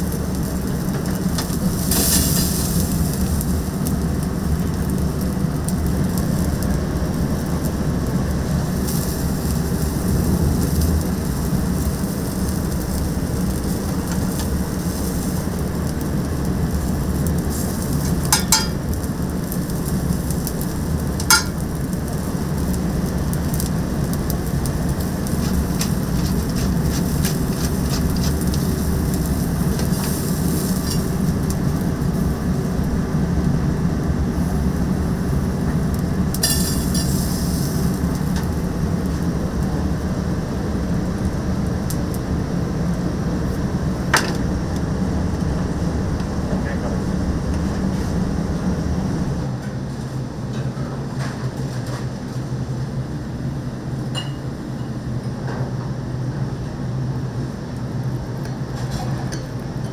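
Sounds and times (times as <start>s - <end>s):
skewers sizzling on charcoal grill: 0.0s - 49.6s
steady low hum: 12.7s - 49.6s.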